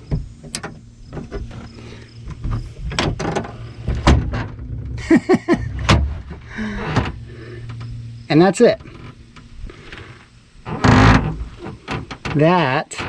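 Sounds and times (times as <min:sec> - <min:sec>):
tailgate latch clicks and clunks: 0:00.0 - 0:01.6.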